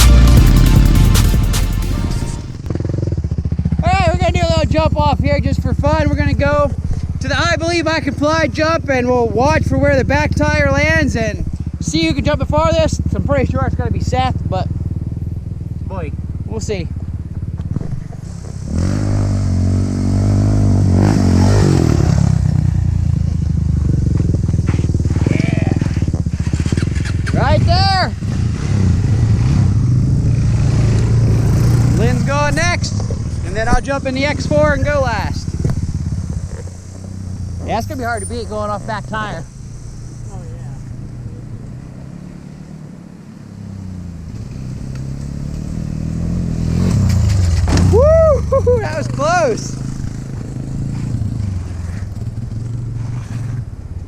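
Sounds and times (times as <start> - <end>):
engine revving hard: 0.0 - 3.0, 18.2 - 22.7, 25.2 - 42.8, 43.8 - 48.0
engine idling close by: 2.2 - 19.3, 31.0 - 45.0
short clattering crunch: 17.5 - 18.7, 35.4 - 38.6.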